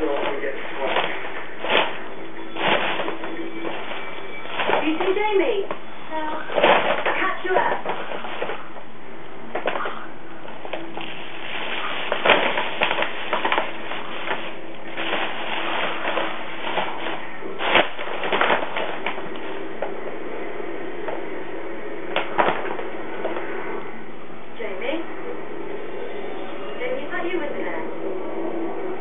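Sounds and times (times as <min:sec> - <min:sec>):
bag rustling and crinkling: 0:00.0 - 0:19.9, 0:22.1 - 0:23.5.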